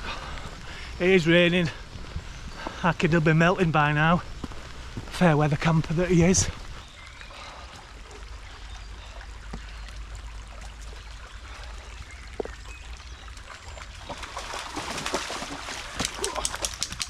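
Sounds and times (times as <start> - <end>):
rain hissing: 0.0 - 8.9.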